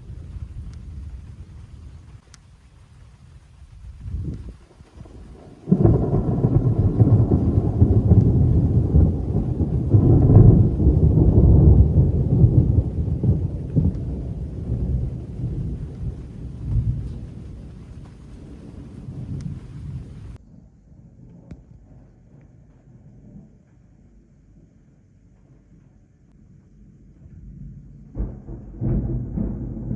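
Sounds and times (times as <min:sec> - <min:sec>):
thunder clap and rumble: 0:00.0 - 0:20.5, 0:27.2 - 0:29.9.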